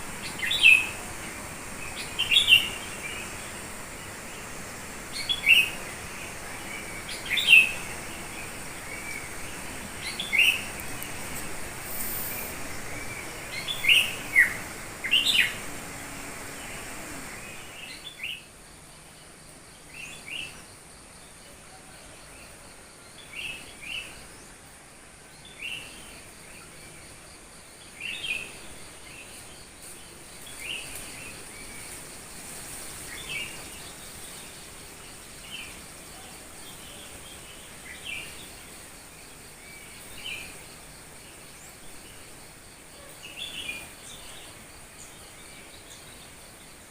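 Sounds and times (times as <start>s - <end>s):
bird chirping: 0.0s - 24.7s
faint background hiss: 0.0s - 46.9s.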